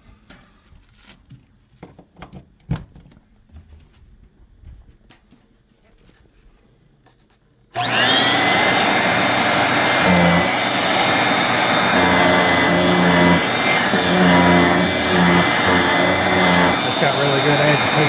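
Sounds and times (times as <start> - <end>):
vacuum cleaner motor whine: 7.8 - 18.0.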